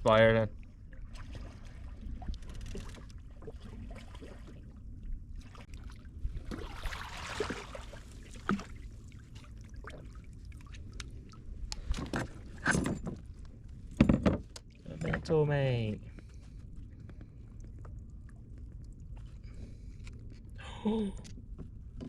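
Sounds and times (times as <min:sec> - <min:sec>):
water sloshing around kayak: 0:00.5 - 0:14.9
knocks and scrapes on hull: 0:16.0 - 0:20.5.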